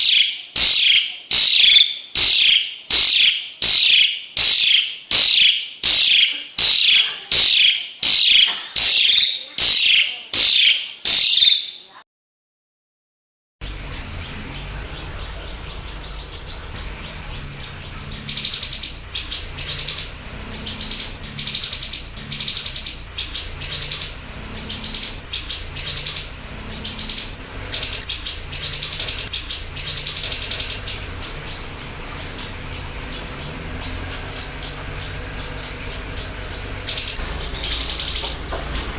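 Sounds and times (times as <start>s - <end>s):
bird chattering trills: 0.0s - 11.9s, 13.6s - 38.9s
loud high bird call: 0.0s - 11.9s.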